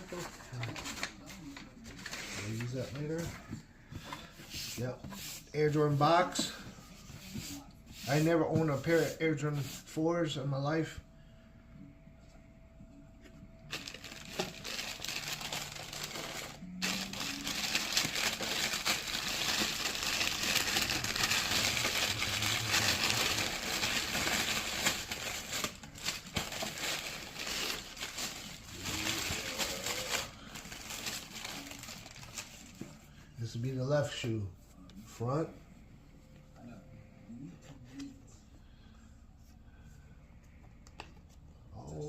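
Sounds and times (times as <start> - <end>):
packing paper crinkling: 13.7 - 32.8.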